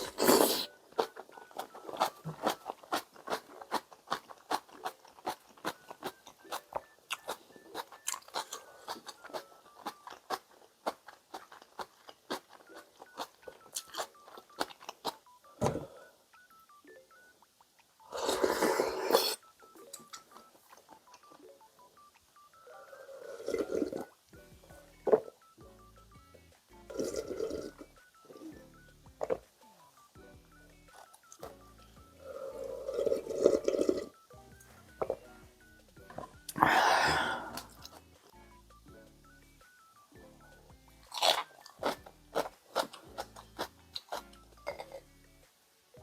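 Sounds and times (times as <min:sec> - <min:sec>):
quiet background music: 0:00.0 - 0:46.0
close eating clicks: 0:01.0 - 0:15.2.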